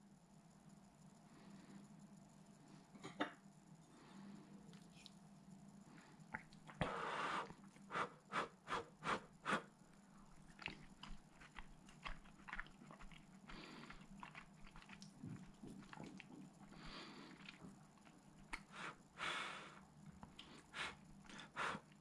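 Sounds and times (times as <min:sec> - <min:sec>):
close-up chewing: 0:06.2 - 0:07.9, 0:09.5 - 0:22.0
soft mouth clicks: 0:06.3 - 0:06.8.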